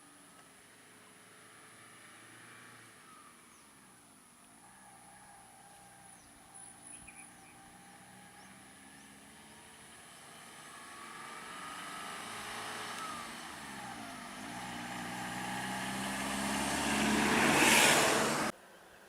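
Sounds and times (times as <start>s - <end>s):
vehicle engine approaching: 4.6s - 18.6s.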